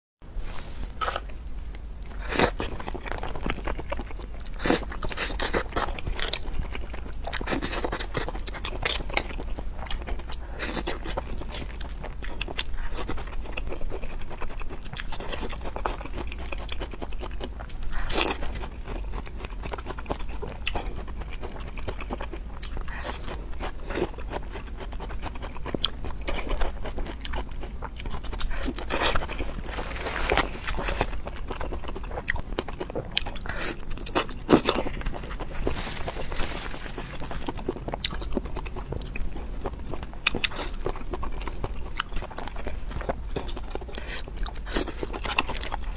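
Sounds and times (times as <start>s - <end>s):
wet chewing: 1.0s - 45.9s
crunchy bites: 25.2s - 45.9s.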